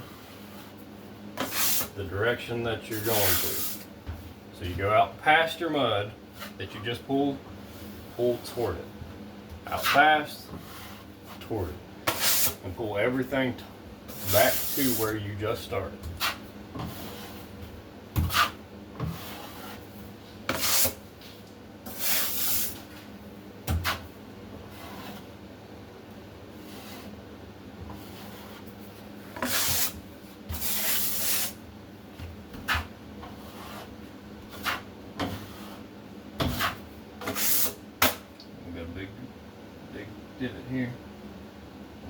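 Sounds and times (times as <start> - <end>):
trowel scraping compound: 1.4 - 2.0, 2.9 - 3.9, 9.7 - 11.5, 12.1 - 12.6, 14.1 - 15.2, 16.0 - 17.6, 18.2 - 21.0, 21.8 - 23.1, 24.7 - 25.3, 26.6 - 27.2, 27.9 - 31.6, 32.6 - 38.2.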